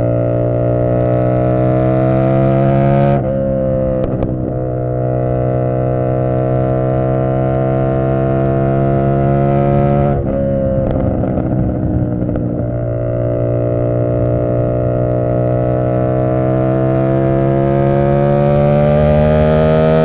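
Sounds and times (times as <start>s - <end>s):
motorcycle engine cruising: 0.0s - 20.0s
crackly exhaust: 10.0s - 16.1s.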